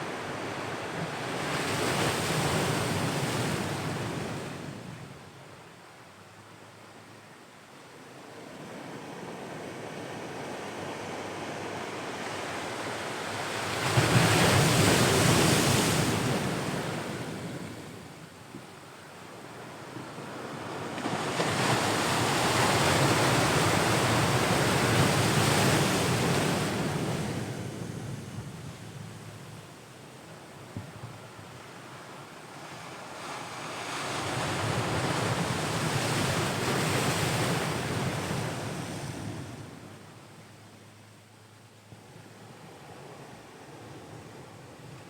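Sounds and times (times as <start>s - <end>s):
ocean waves breaking on shore: 8.3s - 18.1s, 19.4s - 29.6s, 31.3s - 40.2s.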